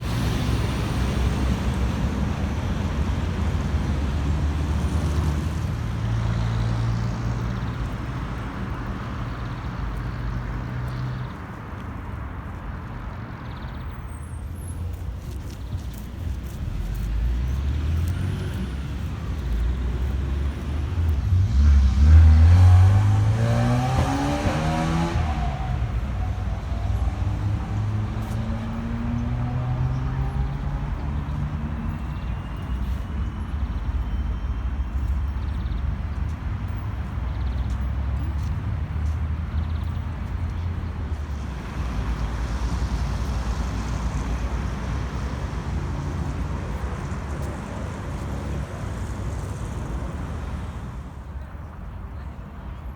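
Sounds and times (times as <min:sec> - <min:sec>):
heavy vehicle engine accelerating: 0:00.0 - 0:11.1, 0:16.6 - 0:32.8
road traffic: 0:00.0 - 0:52.9.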